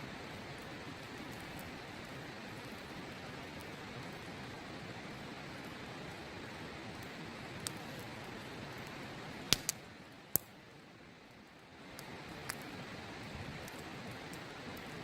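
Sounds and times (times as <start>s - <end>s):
campfire crackling: 0.0s - 15.0s
sharp pops of fire: 7.0s - 8.2s, 8.8s - 10.6s, 11.9s - 15.0s.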